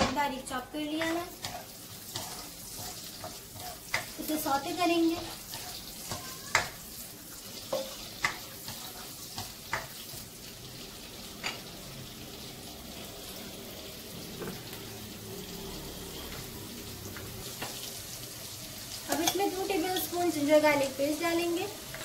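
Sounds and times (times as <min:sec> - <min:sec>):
food sizzling in hot oil: 0:00.0 - 0:22.0
spatula tapping and scraping pan: 0:00.9 - 0:06.9, 0:07.5 - 0:10.3.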